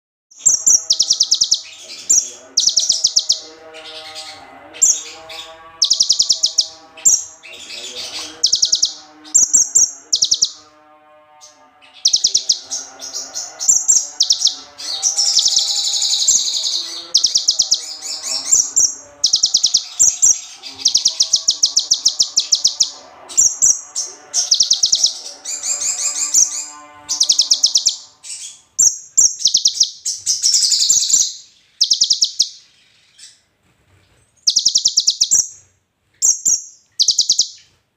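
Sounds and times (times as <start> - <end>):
songbird buzzy trills: 0.4 - 33.3, 34.4 - 35.6, 36.2 - 37.7.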